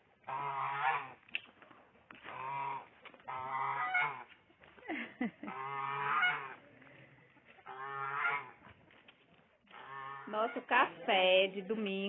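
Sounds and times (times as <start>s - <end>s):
geese honking: 0.2s - 1.2s, 2.2s - 4.4s, 5.4s - 6.6s, 7.4s - 8.7s, 9.7s - 10.9s.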